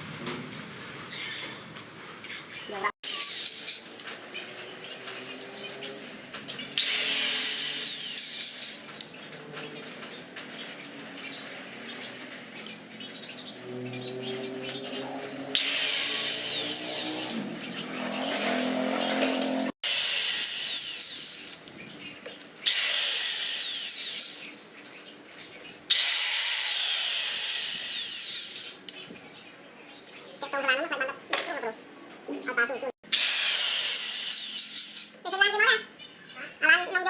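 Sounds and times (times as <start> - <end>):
power tool bursts: 3.0 - 3.9, 6.8 - 8.9, 15.5 - 21.7, 22.6 - 24.5, 25.9 - 28.8, 33.1 - 35.2.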